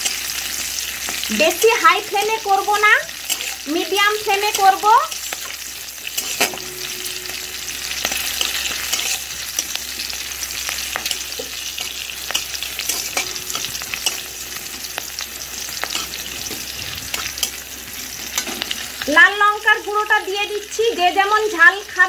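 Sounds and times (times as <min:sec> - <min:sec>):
chillies sizzling in hot oil: 0:00.0 - 0:22.0
metal spatula scraping a pan: 0:03.2 - 0:19.0.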